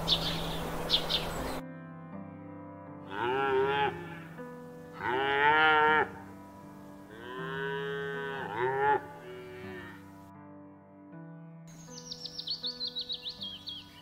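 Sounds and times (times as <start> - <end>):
cow mooing: 3.1 - 4.4, 5.0 - 6.3, 7.1 - 10.1.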